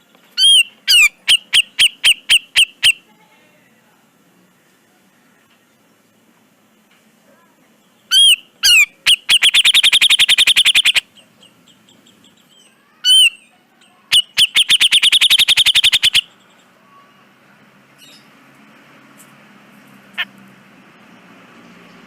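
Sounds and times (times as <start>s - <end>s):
bulbul singing trilled phrases: 0.4s - 3.1s, 7.8s - 17.4s.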